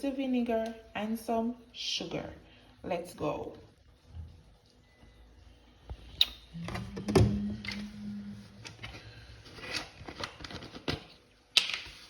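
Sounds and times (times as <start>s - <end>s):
low buzz: 6.5s - 8.7s.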